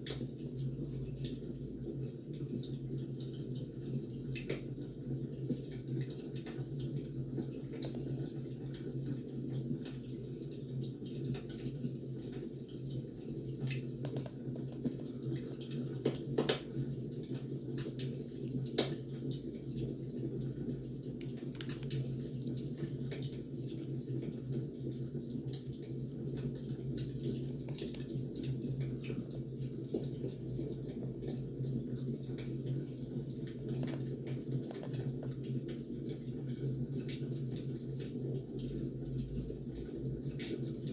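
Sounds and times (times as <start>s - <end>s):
low fire background: 0.0s - 40.9s
firewood crackling and popping: 21.1s - 23.4s.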